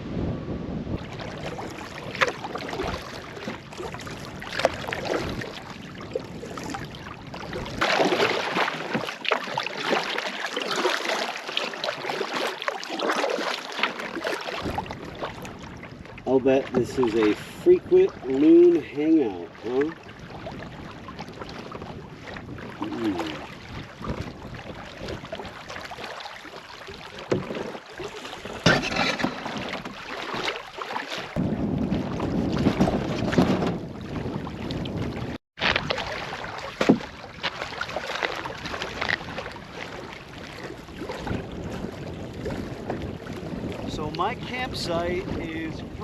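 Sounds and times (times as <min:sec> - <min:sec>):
wind buffeting microphone: 0:00.0 - 0:07.9, 0:14.6 - 0:26.0, 0:31.3 - 0:37.5, 0:38.5 - 0:46.0
canoe paddle splashing in water: 0:01.0 - 0:46.0.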